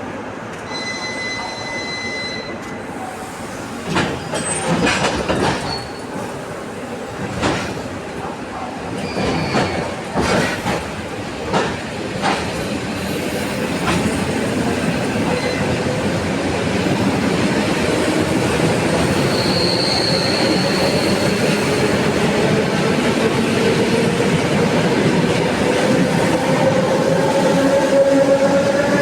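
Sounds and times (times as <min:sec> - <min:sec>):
train wheels rumbling on rails: 0:02.6 - 0:29.0
high wheel squeal: 0:19.0 - 0:21.7.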